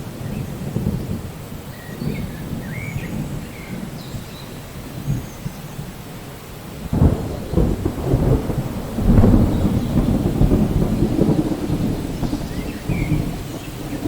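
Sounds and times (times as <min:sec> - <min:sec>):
steady rain: 0:00.0 - 0:14.0
thunder rumbling: 0:00.0 - 0:14.0.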